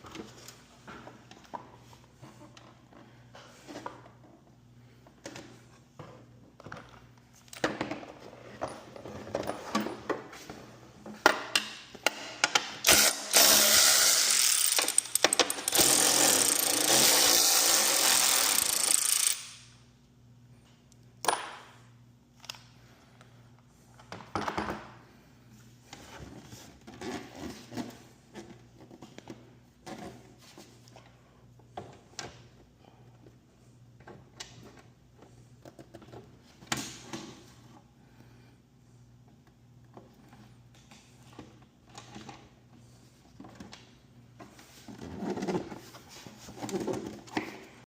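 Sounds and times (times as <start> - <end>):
power tool running: 12.8 - 19.6.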